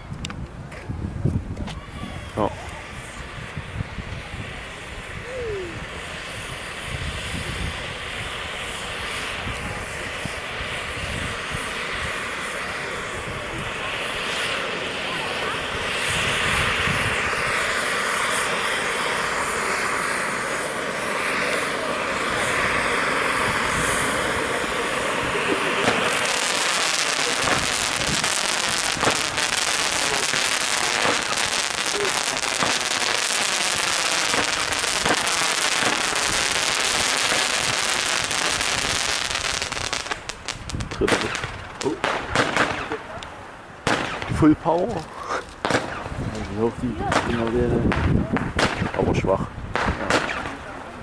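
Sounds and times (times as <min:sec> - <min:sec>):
firework fountain hissing: 0:00.0 - 0:51.0
firework battery crackling shots: 0:01.6 - 0:51.0
loud firework pops: 0:25.5 - 0:46.2, 0:47.1 - 0:50.6.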